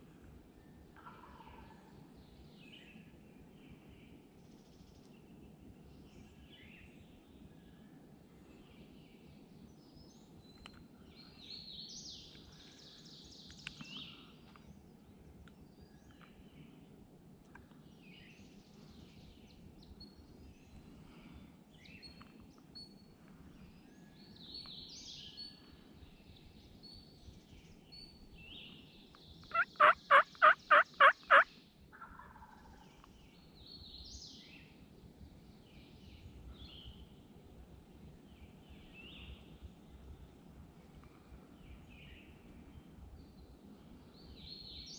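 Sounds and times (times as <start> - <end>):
faint songbird chirps: 0.0 - 44.9
turkey calling: 29.5 - 32.5.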